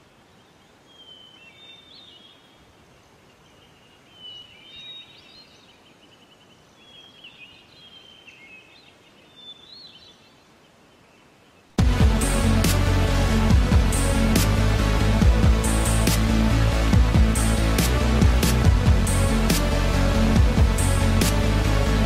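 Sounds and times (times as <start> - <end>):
faint background hiss: 0.0 - 11.8.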